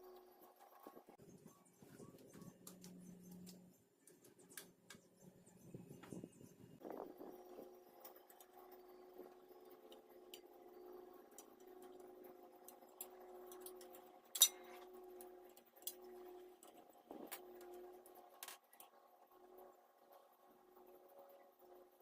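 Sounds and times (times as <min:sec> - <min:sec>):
steady hum: 0:00.0 - 0:22.0
metal clicks of hand tools: 0:13.6 - 0:14.8.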